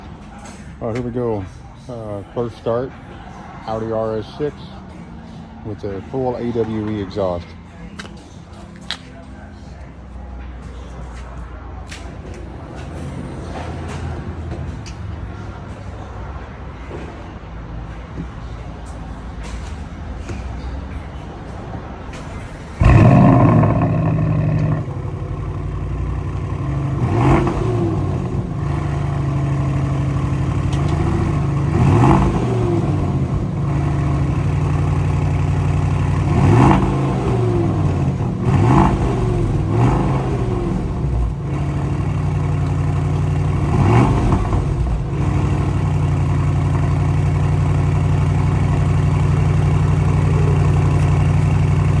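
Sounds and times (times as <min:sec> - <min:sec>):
car engine starting and idling: 0:22.2 - 0:52.0
engine revving: 0:22.7 - 0:52.0.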